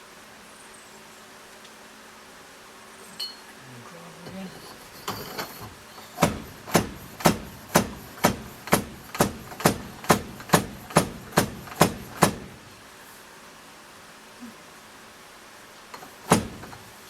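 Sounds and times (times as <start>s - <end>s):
metal-on-metal knocks: 4.7s - 12.5s.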